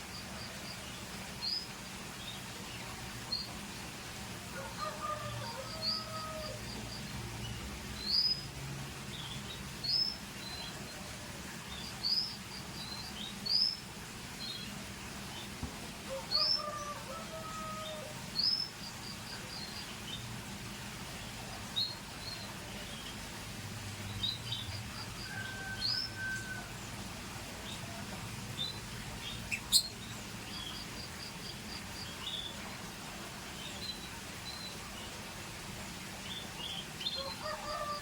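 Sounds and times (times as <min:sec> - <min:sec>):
canaries chirping and whistling: 0:29.5 - 0:30.0.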